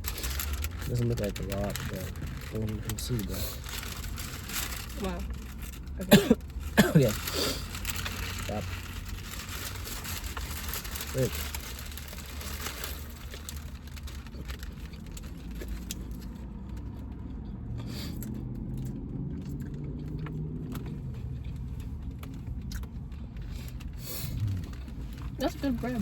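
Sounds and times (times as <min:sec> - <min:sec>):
clicks and rustles: 0:00.0 - 0:05.8
person chewing: 0:13.3 - 0:25.4
steady low hum: 0:19.4 - 0:26.0
low droning tone: 0:24.3 - 0:26.0.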